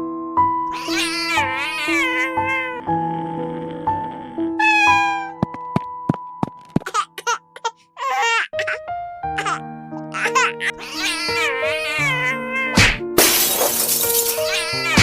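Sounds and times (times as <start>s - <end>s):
background music: 0.0s - 15.0s
cat meowing: 0.7s - 2.8s, 4.6s - 5.4s, 10.8s - 12.8s.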